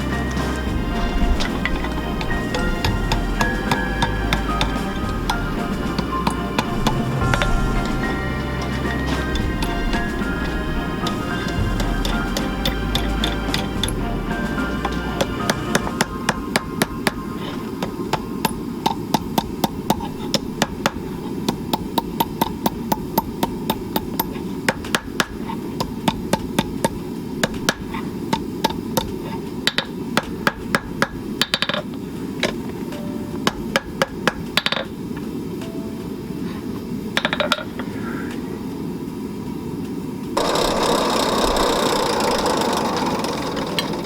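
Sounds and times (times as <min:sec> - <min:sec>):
low rushing noise: 0:00.0 - 0:21.2
hammer striking steel on anvil: 0:00.0 - 0:29.1.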